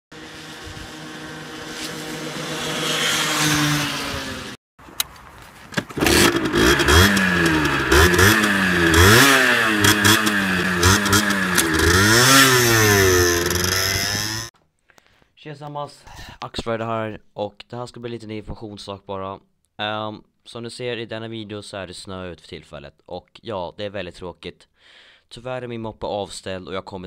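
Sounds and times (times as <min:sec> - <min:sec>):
moped engine revving: 0:00.1 - 0:04.6, 0:05.9 - 0:14.5.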